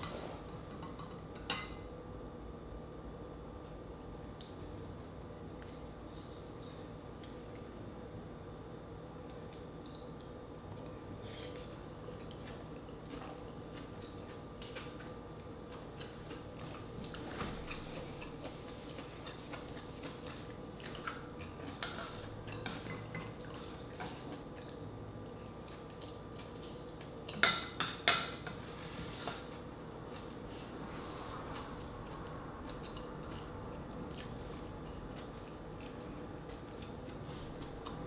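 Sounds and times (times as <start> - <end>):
faint steady hum: 0.0 - 38.0
wet chewing sounds: 9.2 - 27.8, 28.5 - 38.0.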